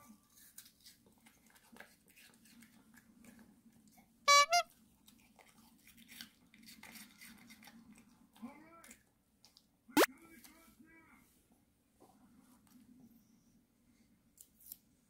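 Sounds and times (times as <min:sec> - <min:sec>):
dog chewing crunchy food: 0:04.8 - 0:08.3.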